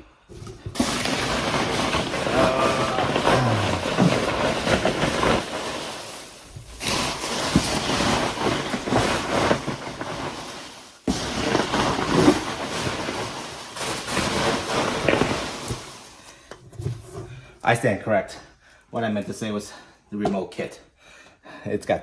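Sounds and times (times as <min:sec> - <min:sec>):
packing peanuts rustling and crunching: 0:00.3 - 0:16.4.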